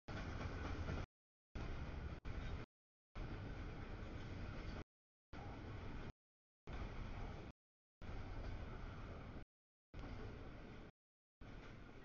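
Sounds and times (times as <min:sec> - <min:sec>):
freight train rumbling past: 0:00.1 - 0:04.8.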